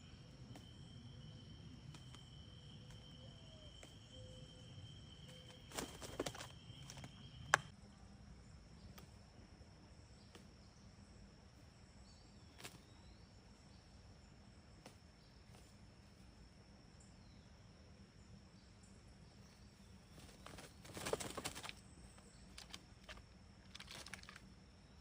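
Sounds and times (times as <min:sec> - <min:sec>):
high-pitched insect drone: 0:00.0 - 0:07.5.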